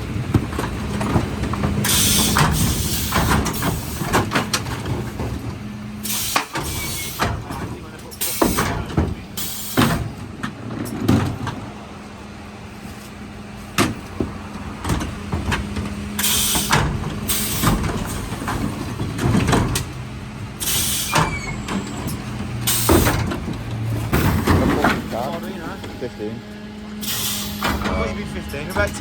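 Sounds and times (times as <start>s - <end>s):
bins knocking and clattering: 0.0s - 5.7s, 6.4s - 11.7s, 13.7s - 20.2s, 21.2s - 26.0s
truck engine and hydraulics humming: 0.0s - 29.0s
hiss bursts: 16.2s - 17.8s.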